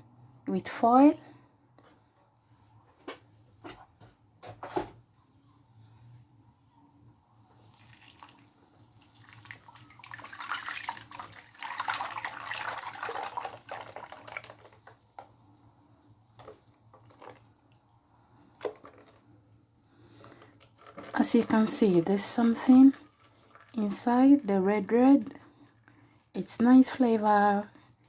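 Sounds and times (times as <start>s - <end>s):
liquid pouring into bowl: 7.5s - 26.1s.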